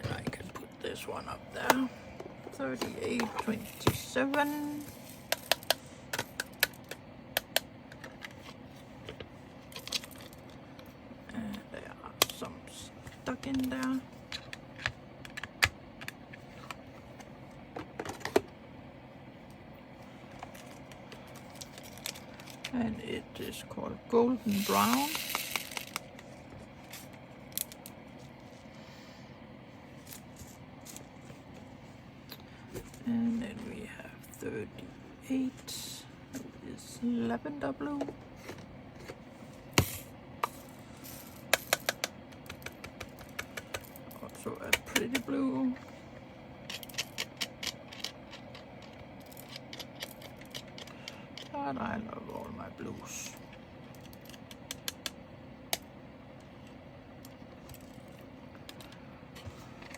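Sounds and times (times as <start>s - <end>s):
plastic beads clicking and rattling: 24.5s - 26.0s.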